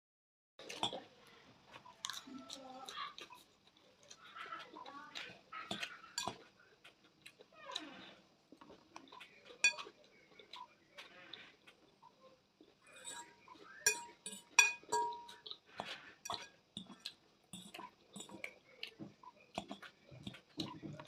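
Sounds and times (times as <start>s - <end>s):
cutlery clinking against a dish: 5.6s - 6.5s, 9.6s - 10.0s, 12.9s - 18.5s, 19.6s - 21.0s.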